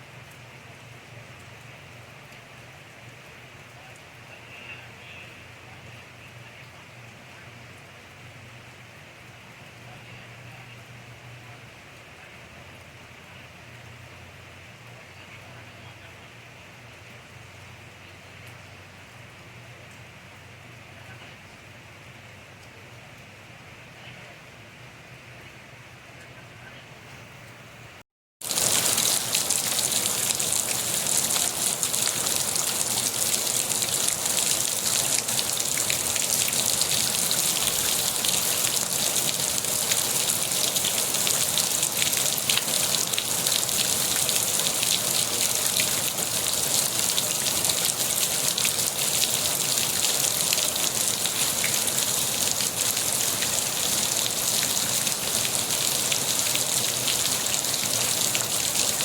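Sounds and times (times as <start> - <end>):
steady rain falling: 0.0 - 27.7, 28.4 - 59.0
raindrop ticks: 1.4 - 4.2, 28.4 - 59.0.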